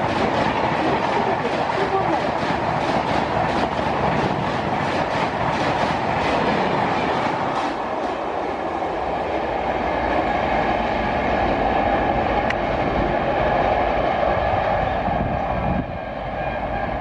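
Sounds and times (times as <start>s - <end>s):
train wheels clicking over rail joints: 0.0s - 8.3s
rumble of rail noise: 0.0s - 17.0s.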